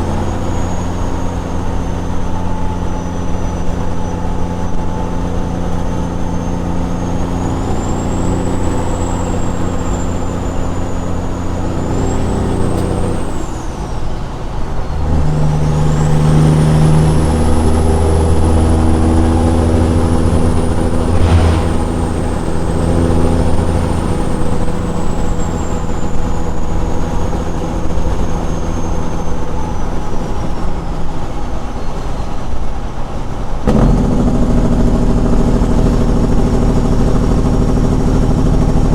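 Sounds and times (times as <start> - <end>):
truck diesel exhaust: 0.0 - 30.8
high turbo whistle: 15.1 - 26.9.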